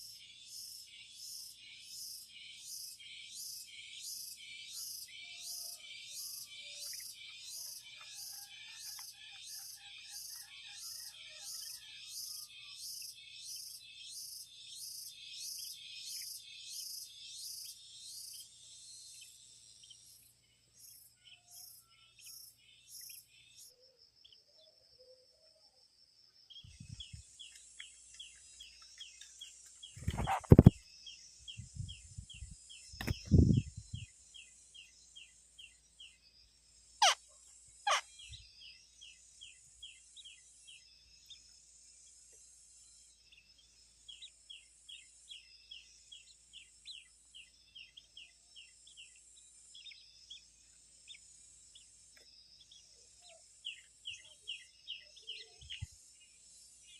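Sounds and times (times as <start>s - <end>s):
insects chirping: 0.0s - 56.9s
sharp falling bird calls: 29.9s - 30.8s, 37.9s - 38.4s.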